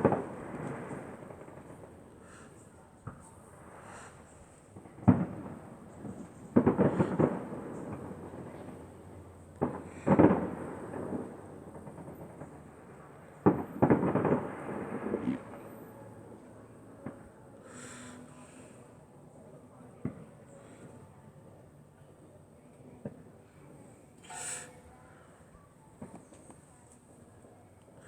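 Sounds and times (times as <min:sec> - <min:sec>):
fireworks bangs: 0:00.0 - 0:02.2, 0:03.0 - 0:17.2
fireworks crackling: 0:00.0 - 0:17.8.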